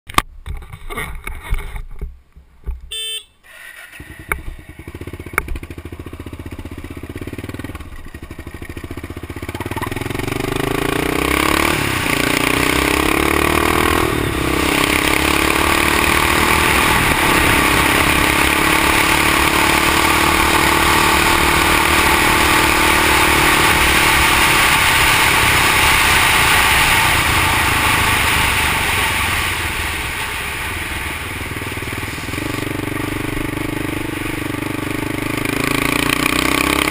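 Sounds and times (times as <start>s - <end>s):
wind and road noise: 0.1s - 36.9s
engine accelerating: 3.8s - 36.9s.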